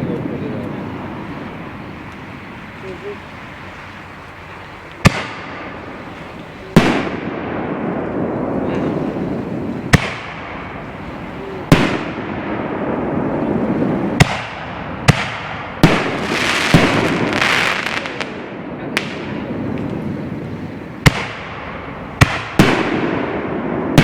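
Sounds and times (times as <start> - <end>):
murmur of voices: 0.0 - 7.0, 7.6 - 11.8, 12.7 - 21.0
firework crackling: 0.0 - 24.0
firework shells booming: 5.0 - 24.0.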